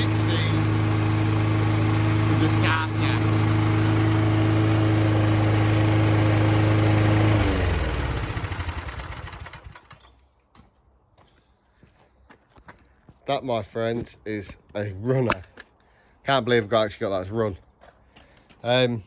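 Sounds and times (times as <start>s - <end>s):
lawnmower engine running: 0.0s - 10.1s.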